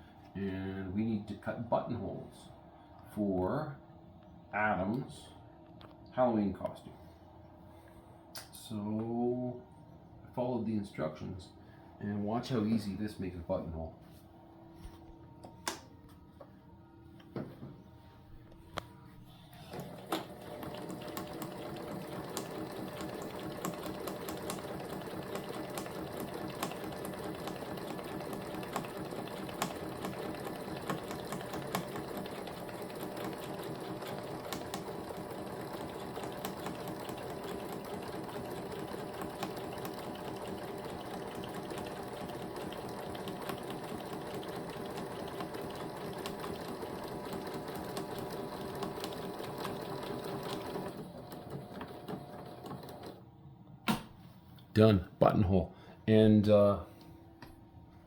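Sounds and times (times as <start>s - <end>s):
sewing machine stitching: 19.6s - 53.2s.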